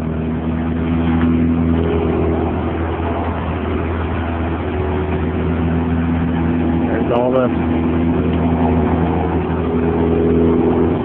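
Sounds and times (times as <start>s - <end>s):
rotary engine idling: 0.0s - 11.0s.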